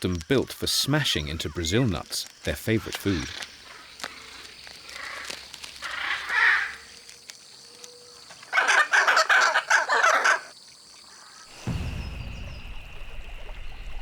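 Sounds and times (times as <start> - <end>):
macaws calling: 3.0 - 11.4.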